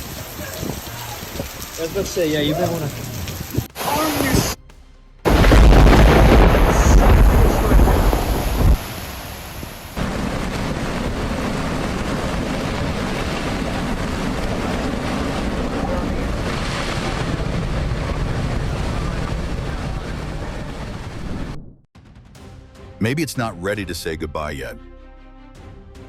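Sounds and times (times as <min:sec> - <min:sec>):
steady rushing noise: 0:03.5 - 0:04.6, 0:05.2 - 0:21.8.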